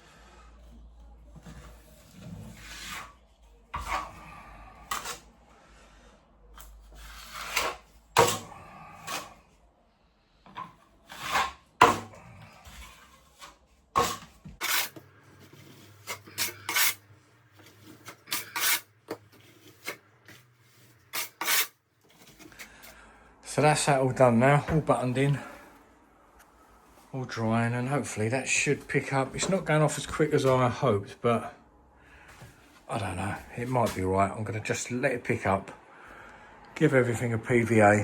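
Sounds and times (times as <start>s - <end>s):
trowel scraping plaster: 1.5s - 5.3s, 6.8s - 9.4s, 11.0s - 17.0s, 17.6s - 22.7s
trowel clacking: 16.0s - 17.0s, 17.9s - 20.0s, 21.1s - 21.7s.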